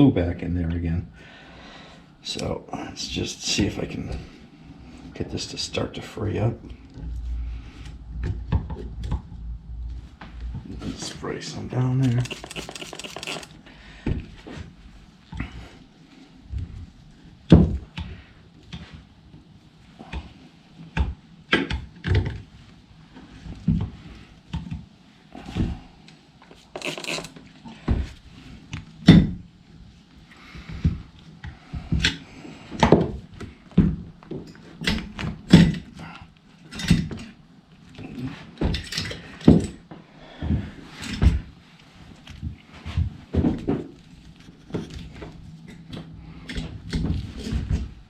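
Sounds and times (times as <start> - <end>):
screwdriver knocking on handlebar: 12.2 - 13.5.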